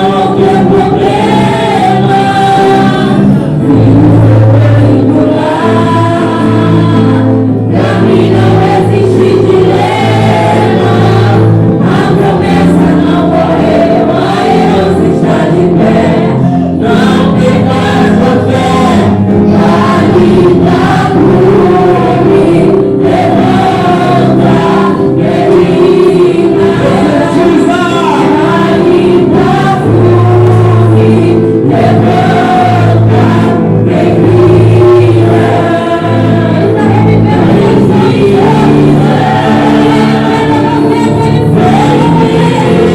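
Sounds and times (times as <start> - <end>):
choir singing: 0.0 - 42.9
sustained instrumental chords: 0.0 - 42.9.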